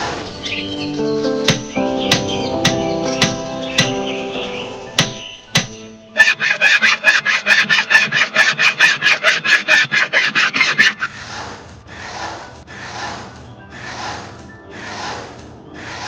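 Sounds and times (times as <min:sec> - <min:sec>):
hand tool rasping on wood: 0:05.0 - 0:11.2.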